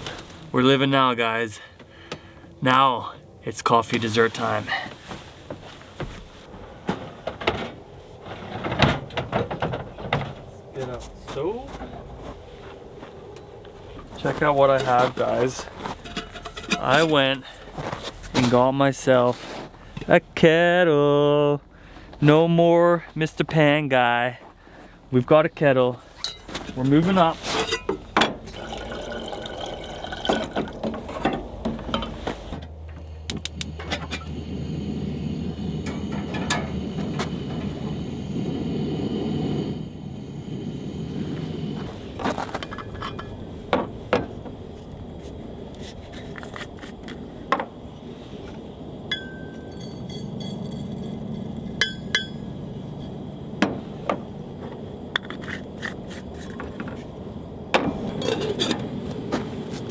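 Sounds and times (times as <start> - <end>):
kettle cups and utensils clinking: 15.8 - 17.4, 26.2 - 32.2, 35.8 - 37.8, 42.4 - 44.4, 49.1 - 52.6, 57.8 - 59.9.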